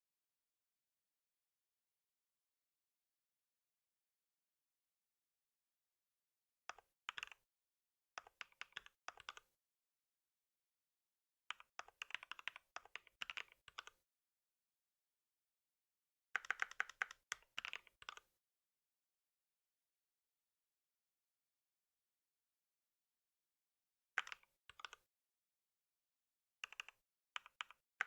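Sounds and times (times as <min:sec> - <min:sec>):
typing on a computer keyboard: 0:06.7 - 0:07.4, 0:08.2 - 0:09.5, 0:11.5 - 0:14.0, 0:16.4 - 0:18.3, 0:24.2 - 0:25.0, 0:26.6 - 0:27.8.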